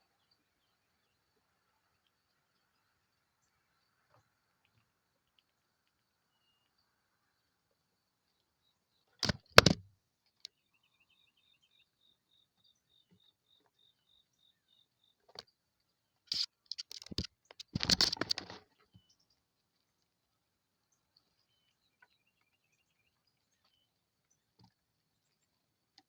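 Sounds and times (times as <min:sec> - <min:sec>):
sharp knocks: 0:09.2 - 0:09.8
clicking and scratching: 0:16.3 - 0:18.7.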